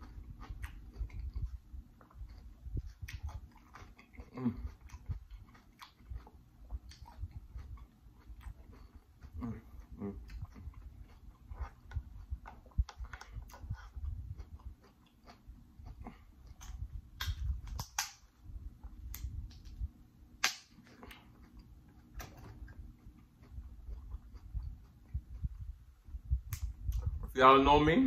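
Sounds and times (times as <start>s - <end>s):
wet chewing: 0.0s - 27.4s
fingers handling food clicks: 10.2s - 18.3s, 20.4s - 25.6s.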